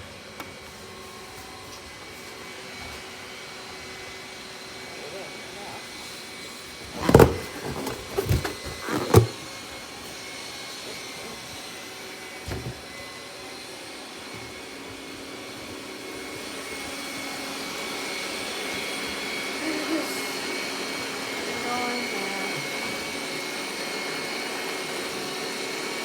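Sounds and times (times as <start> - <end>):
robot vacuum whirring: 6.7 - 10.4.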